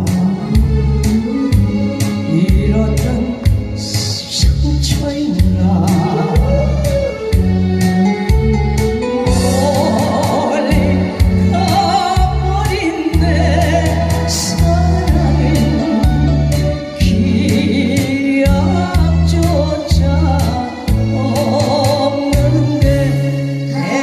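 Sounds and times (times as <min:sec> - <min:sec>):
person singing: 0:00.0 - 0:24.0
music with heavy bass beat: 0:04.4 - 0:12.6, 0:13.2 - 0:18.1.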